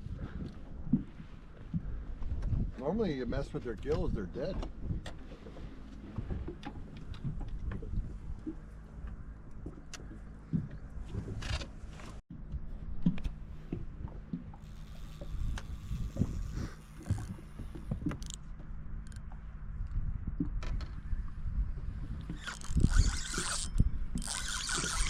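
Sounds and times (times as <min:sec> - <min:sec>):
low hum and rumble: 0:00.0 - 0:25.0
short scrapes: 0:22.3 - 0:25.0.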